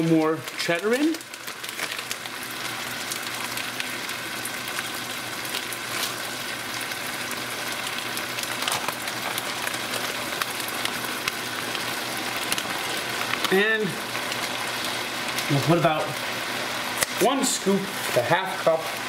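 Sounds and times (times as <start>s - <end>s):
meat sizzling in a skillet: 0.0s - 19.0s.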